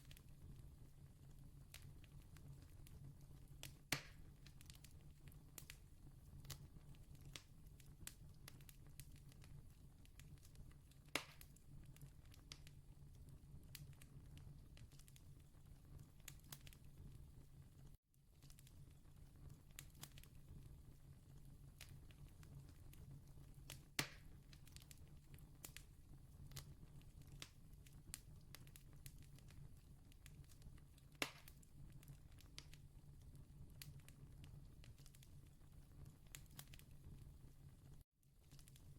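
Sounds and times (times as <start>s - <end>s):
fire pops: 1.6s - 5.8s, 6.4s - 12.8s, 21.7s - 32.9s
campfire crackling: 21.3s - 37.0s.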